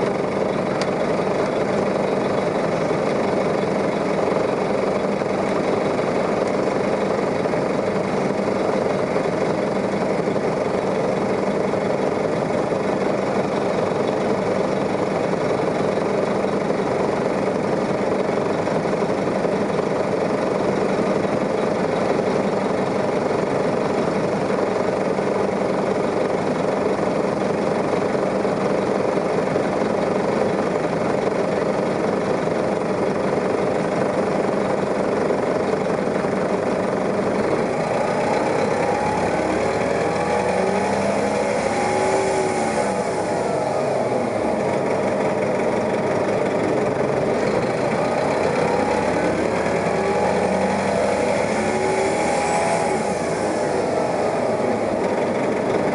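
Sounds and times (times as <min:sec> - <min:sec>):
bus engine droning: 0:00.0 - 0:55.9.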